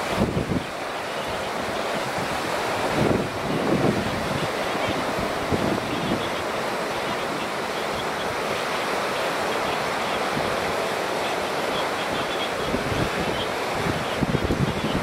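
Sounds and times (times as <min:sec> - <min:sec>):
wind buffeting microphone: 0:00.0 - 0:07.6, 0:11.8 - 0:15.0
flood river rushing: 0:00.0 - 0:15.0.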